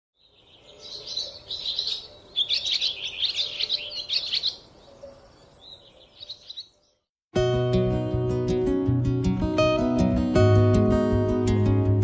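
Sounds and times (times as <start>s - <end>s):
songbird chirping: 0.2s - 7.1s.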